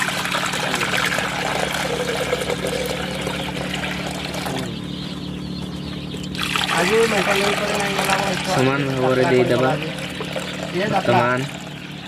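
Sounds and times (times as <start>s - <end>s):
water pouring into drinker: 0.0s - 4.7s, 6.4s - 11.9s.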